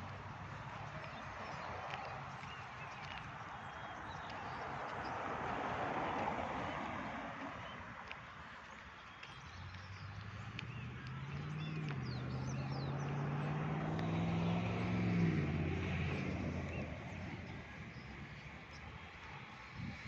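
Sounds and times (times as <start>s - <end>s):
vehicle driving past: 9.9s - 18.7s.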